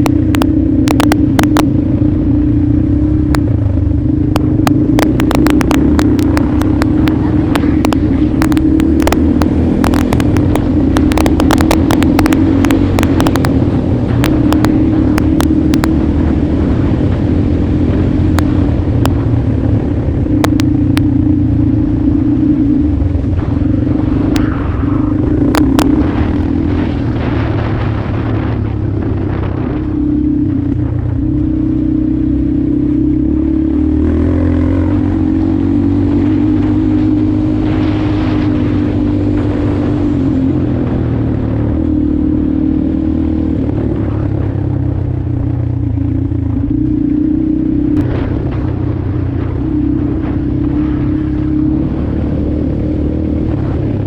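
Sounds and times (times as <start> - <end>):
sharp clicks: 0.0 - 1.8, 4.2 - 16.0, 20.3 - 21.2, 23.3 - 26.6
motorcycle engine running: 0.0 - 54.0.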